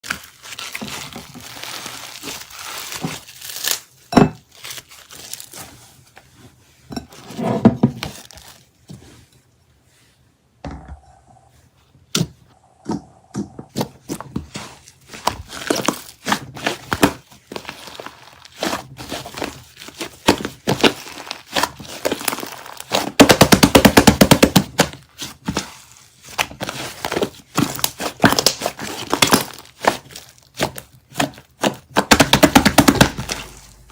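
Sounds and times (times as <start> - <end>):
rapid popping: 32.0 - 33.9.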